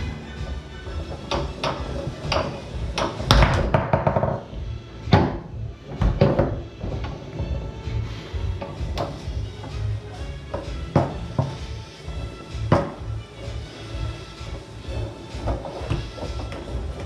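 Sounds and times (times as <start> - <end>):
foosball rods clacking: 1.0 - 4.5, 8.6 - 9.8.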